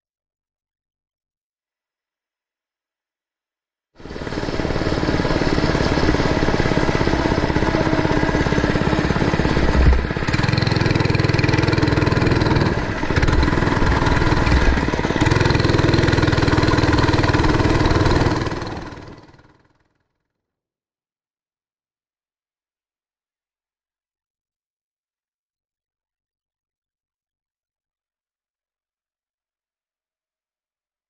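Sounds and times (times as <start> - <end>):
mini bike engine running: 4.0 - 20.2.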